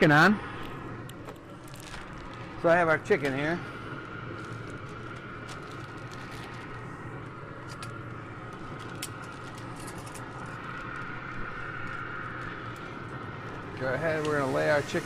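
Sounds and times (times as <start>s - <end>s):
food sizzling on a grill: 13.8s - 15.0s.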